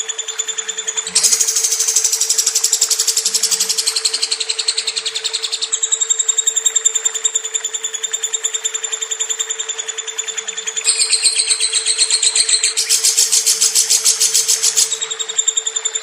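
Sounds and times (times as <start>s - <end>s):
lovebird rapid high chirps: 1.0s - 6.6s, 10.7s - 15.3s.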